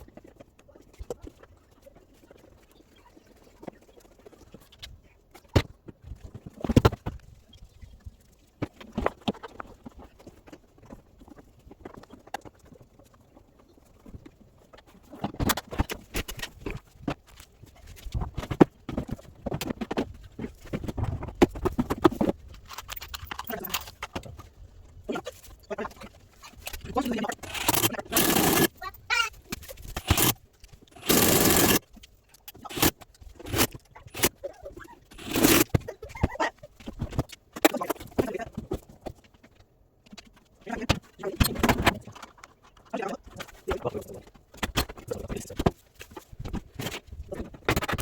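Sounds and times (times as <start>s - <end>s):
clicks and knocks of tools: 21.4s - 24.5s
metal tools clinking and rattling: 21.8s - 24.5s, 25.3s - 38.2s.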